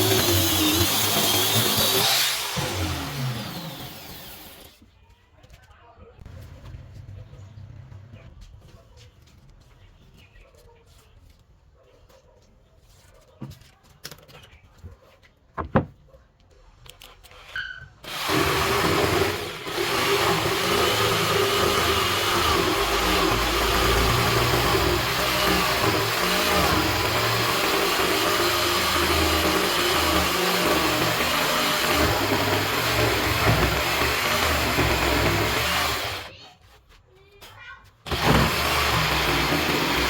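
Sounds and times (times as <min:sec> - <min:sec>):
electric power tool running: 0:00.0 - 0:04.8, 0:18.0 - 0:36.3, 0:38.1 - 0:40.0.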